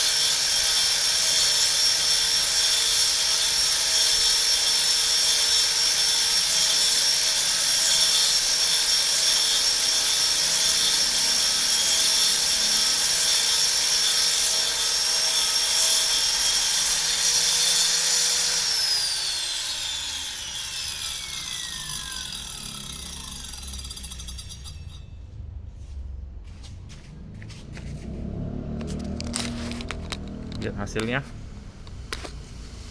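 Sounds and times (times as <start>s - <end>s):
cutting motor whining: 18.4s - 24.3s.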